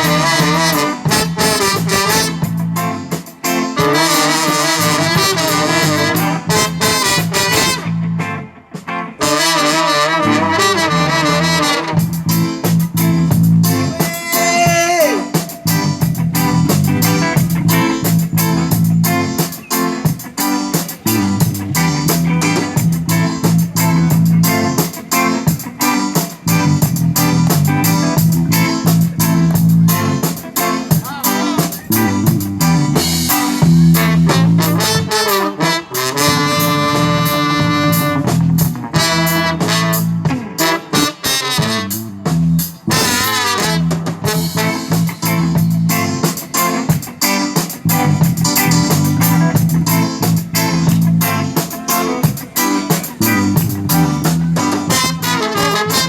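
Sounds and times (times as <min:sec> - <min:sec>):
horn-like lead line: 0:00.0 - 0:02.6, 0:03.8 - 0:08.0, 0:09.2 - 0:12.4, 0:33.9 - 0:38.4, 0:39.0 - 0:42.2, 0:42.9 - 0:45.6, 0:54.8 - 0:56.0
live band music: 0:00.0 - 0:56.0.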